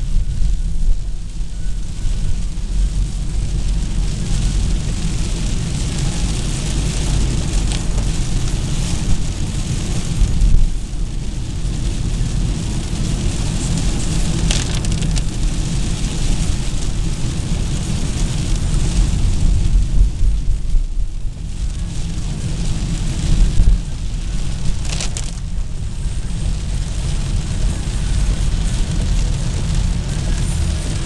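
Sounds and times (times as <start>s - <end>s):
car engine and road rumble: 0.0s - 31.0s
rain and tyre spray hiss: 0.0s - 31.0s.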